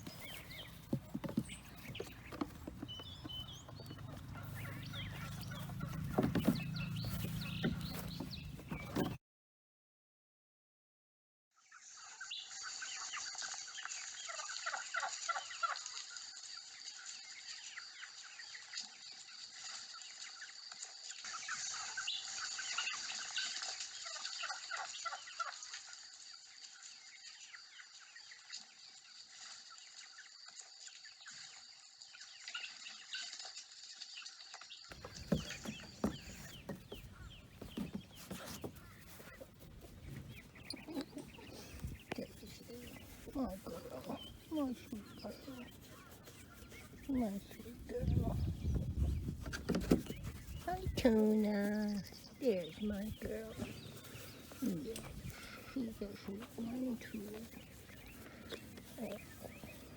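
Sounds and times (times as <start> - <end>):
knocks and rustling: 0.0 - 9.2, 34.9 - 59.9
poultry clucking and chirping: 0.0 - 9.2, 34.9 - 59.9
turkey gobbles: 0.0 - 9.2, 34.9 - 51.0.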